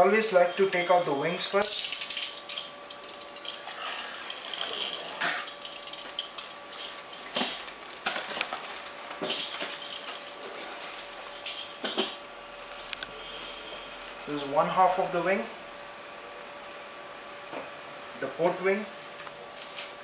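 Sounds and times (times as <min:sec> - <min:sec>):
packaging rustling: 0:03.0 - 0:11.6.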